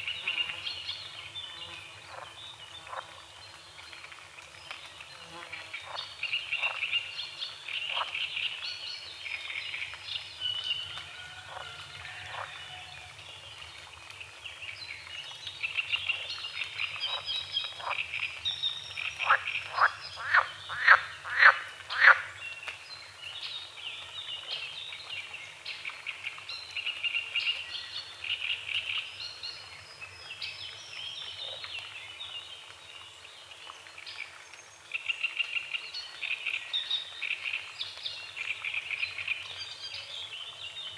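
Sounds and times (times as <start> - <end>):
loud frog croaks: 19.2 - 22.3
frogs croaking: 19.2 - 22.4.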